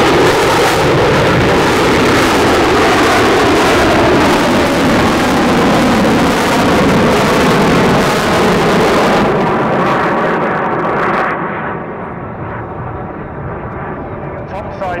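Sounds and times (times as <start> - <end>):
loud jet engine roar: 0.0 - 15.0.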